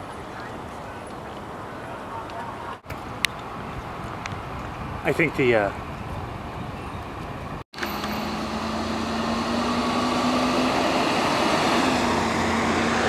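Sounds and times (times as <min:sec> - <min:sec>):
vehicle road noise: 0:00.0 - 0:13.0
low engine hum: 0:05.9 - 0:13.0.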